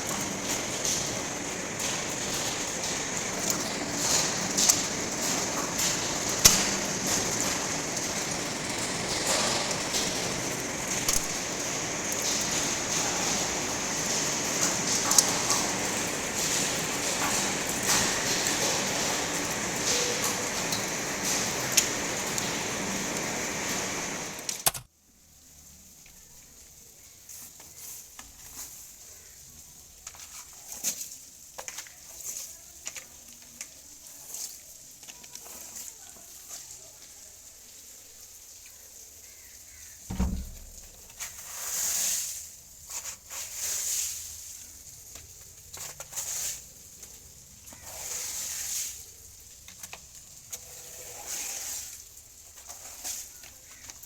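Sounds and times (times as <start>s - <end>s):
steady rain hiss: 0.0s - 54.0s
dull thump: 40.1s - 41.0s.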